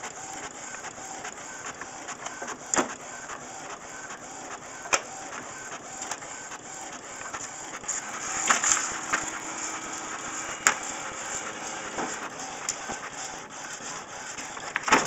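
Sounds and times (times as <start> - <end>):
inkjet printer running: 0.0 - 15.0
paper rustling: 7.2 - 15.0.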